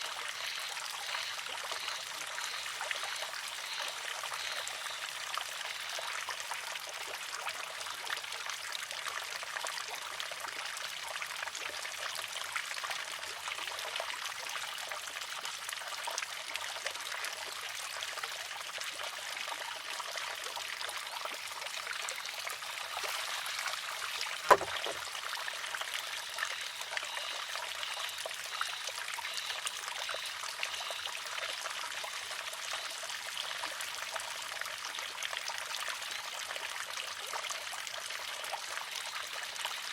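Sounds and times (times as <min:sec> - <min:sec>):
water trickling: 0:00.0 - 0:18.0, 0:18.8 - 0:39.9
bamboo arm clacking on stone: 0:24.4 - 0:25.1.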